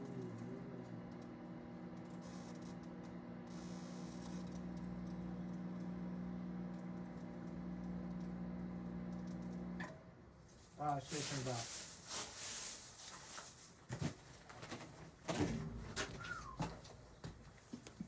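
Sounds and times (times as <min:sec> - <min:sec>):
microwave oven humming: 0:00.0 - 0:10.2.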